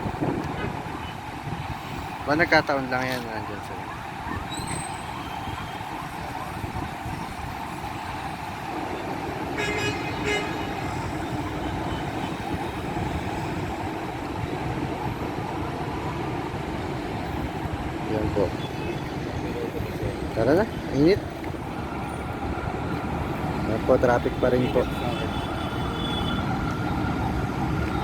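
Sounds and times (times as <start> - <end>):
heavy road traffic: 0.0 - 28.0
vehicle horn tooting: 9.6 - 11.2, 24.5 - 26.4.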